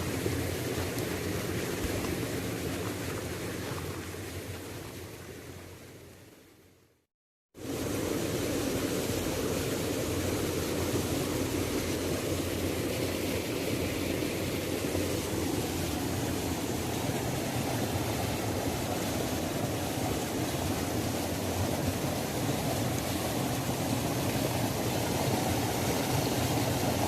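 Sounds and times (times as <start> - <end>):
waterfall rushing: 14.2 - 27.0.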